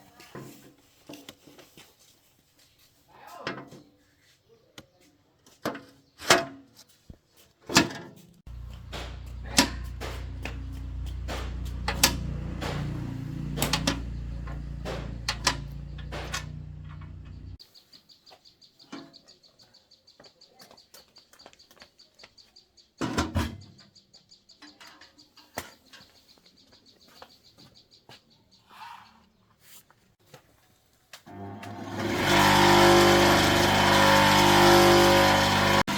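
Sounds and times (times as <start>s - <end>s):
handling clicks and knocks: 7.7s - 17.6s
electric motor humming: 8.5s - 17.6s, 31.3s - 35.9s.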